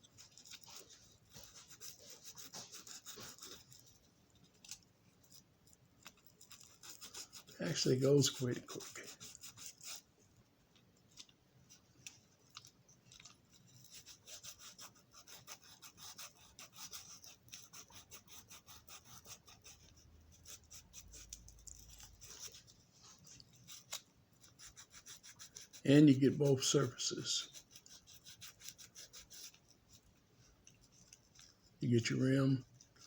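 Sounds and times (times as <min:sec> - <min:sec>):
sandpaper scratching metal wheels: 0:06.4 - 0:10.0, 0:13.6 - 0:22.7, 0:23.5 - 0:30.0.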